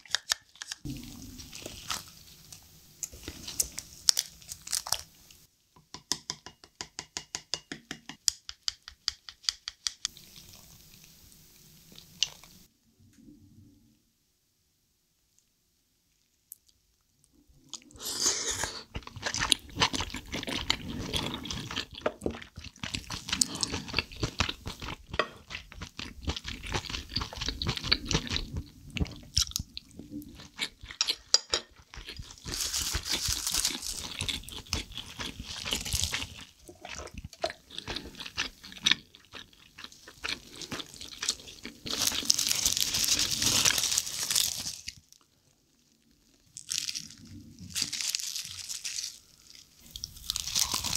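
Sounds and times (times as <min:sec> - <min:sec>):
wet crunchy chewing: 0:17.7 - 0:45.3, 0:46.6 - 0:50.9.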